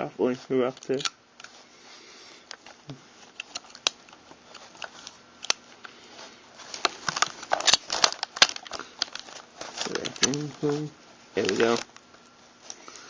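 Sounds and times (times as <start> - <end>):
metal parts clicking and scraping: 6.8 - 10.5.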